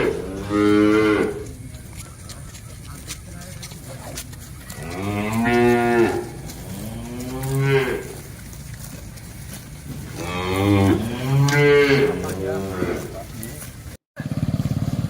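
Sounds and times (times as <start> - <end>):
cattle mooing: 0.0 - 1.7, 4.6 - 8.6, 9.8 - 13.6.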